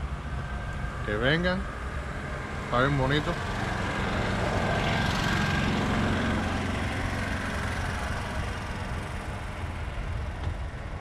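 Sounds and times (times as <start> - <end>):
road noise: 0.0 - 11.0
vehicle engine running: 1.1 - 11.0.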